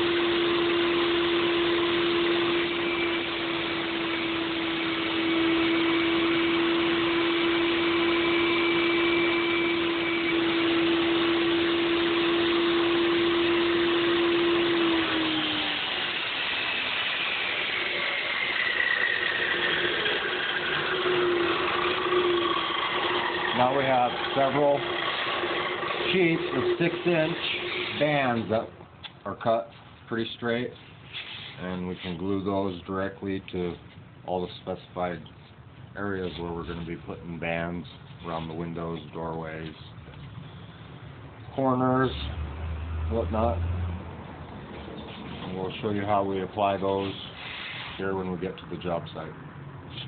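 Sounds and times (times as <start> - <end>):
saw blade whine coasting down: 0.0 - 28.7
table saw cutting styrofoam: 0.0 - 28.7, 45.4 - 48.3.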